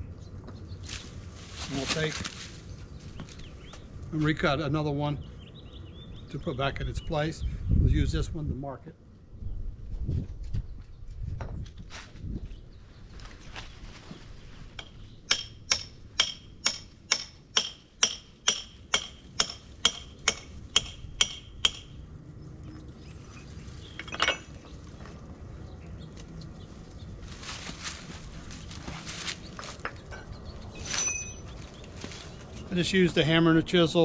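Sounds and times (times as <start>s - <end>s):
hammer striking steel chisel: 14.8s - 21.9s.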